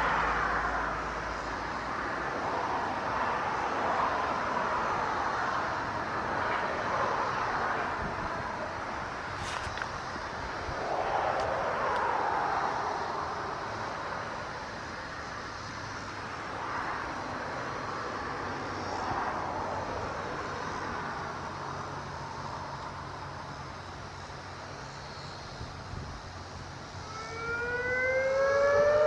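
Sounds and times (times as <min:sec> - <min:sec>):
industrial rushing noise: 0:06.2 - 0:15.4.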